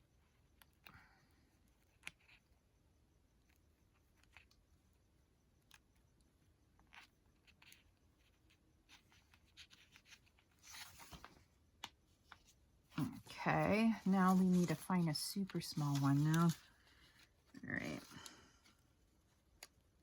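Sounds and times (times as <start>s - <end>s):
paper rustling: 8.9s - 11.5s, 12.3s - 18.7s.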